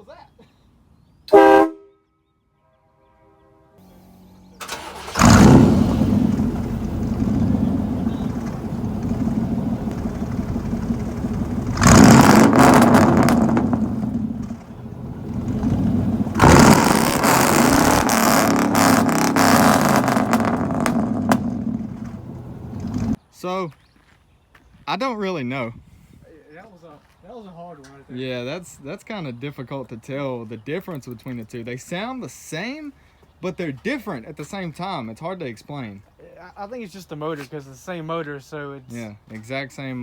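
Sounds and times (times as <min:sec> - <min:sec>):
engines cranking: 0:04.6 - 0:23.2
loud engines revving: 0:04.7 - 0:23.2.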